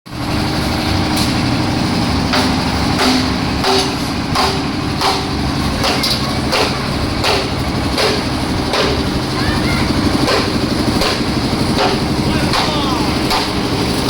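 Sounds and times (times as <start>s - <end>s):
construction machine engine running: 0.1s - 14.0s
metallic clanks: 2.2s - 9.2s.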